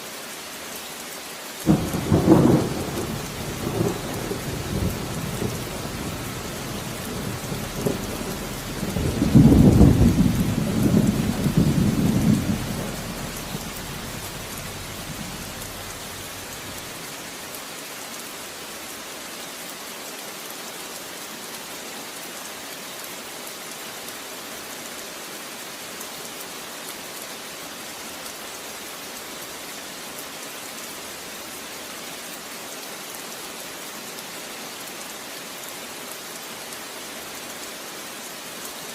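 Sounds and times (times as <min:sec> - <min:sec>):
steady rain: 0:00.0 - 0:38.9
deep peal of thunder: 0:01.7 - 0:16.8.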